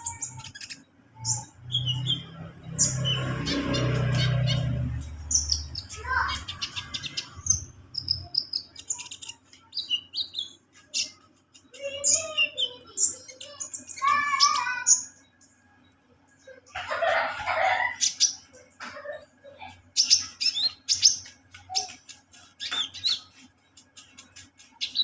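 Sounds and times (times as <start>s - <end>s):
sunbird singing: 0.0s - 15.6s.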